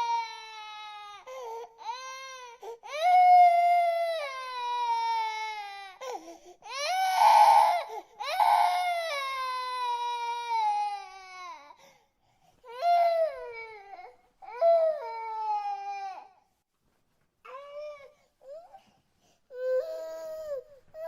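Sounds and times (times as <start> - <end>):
infant crying: 0.0 - 11.8, 19.5 - 21.0.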